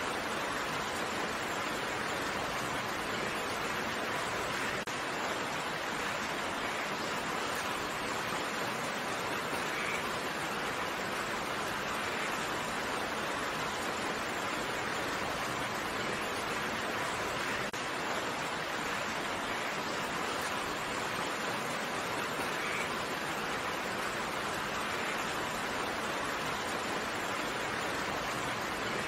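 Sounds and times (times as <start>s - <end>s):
rain hiss: 0.0s - 29.0s.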